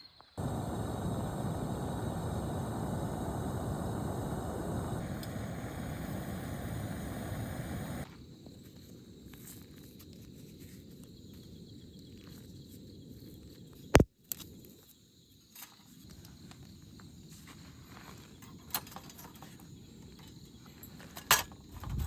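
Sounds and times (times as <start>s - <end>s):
outdoor ambience: 0.0s - 22.0s
steady rushing noise: 0.4s - 8.1s.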